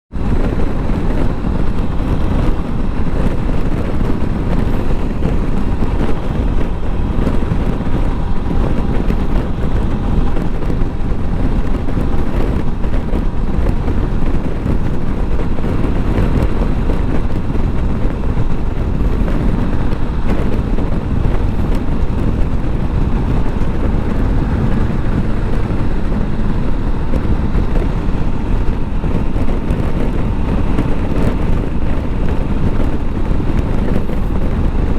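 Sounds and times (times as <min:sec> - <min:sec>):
motorcycle engine: 0:00.1 - 0:34.9
road noise: 0:00.1 - 0:34.9
wind noise on microphone: 0:00.1 - 0:34.9.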